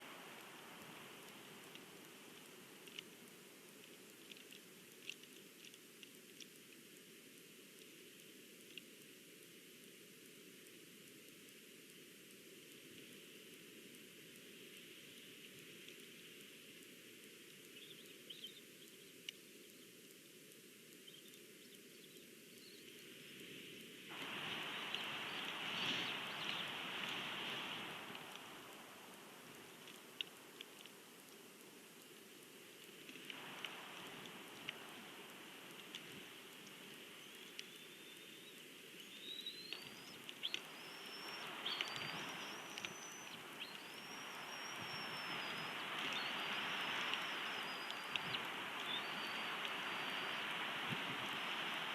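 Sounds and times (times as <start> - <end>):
light ticks: 0.0 - 51.9
steady outdoor hiss: 0.0 - 51.9
faint bird chirps: 17.6 - 20.1, 21.0 - 23.1, 24.1 - 31.0, 33.5 - 51.9.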